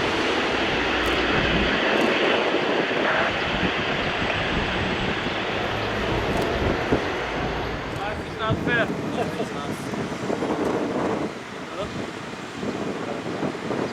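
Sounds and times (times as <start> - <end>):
jet airliner landing: 0.0 - 13.7.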